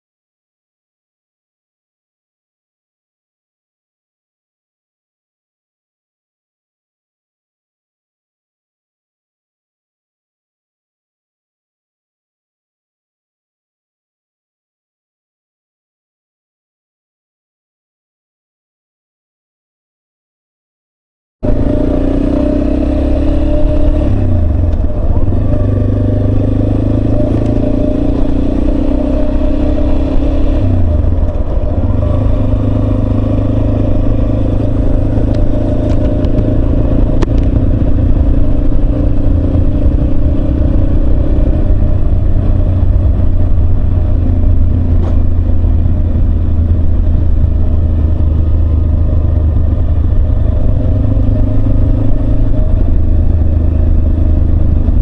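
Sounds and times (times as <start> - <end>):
motorcycle engine running: 21.4 - 55.0.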